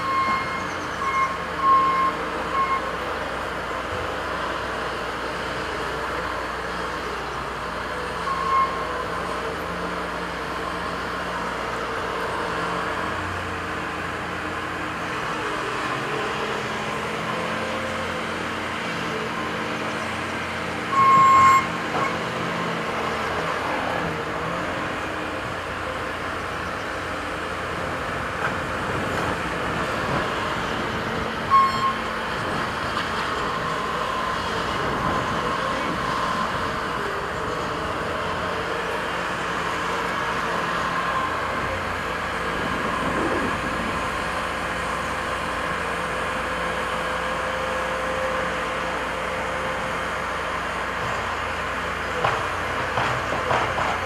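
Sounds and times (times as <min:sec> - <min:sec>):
diesel engines running: 0:00.0 - 0:54.0
short beep: 0:08.3 - 0:08.8, 0:20.9 - 0:22.1, 0:31.5 - 0:32.0.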